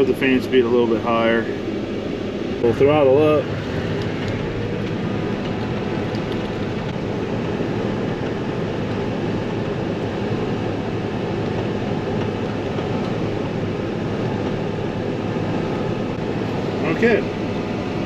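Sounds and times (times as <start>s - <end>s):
combine harvester running: 0.0s - 18.0s.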